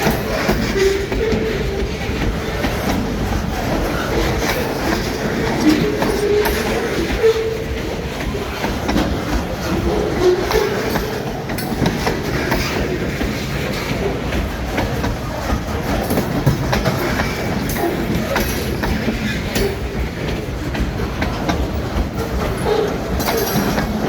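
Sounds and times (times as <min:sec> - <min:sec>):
train wheel squeals: 0:00.0 - 0:14.1, 0:22.0 - 0:24.0
train wheels clacking over rail joints: 0:00.0 - 0:24.0.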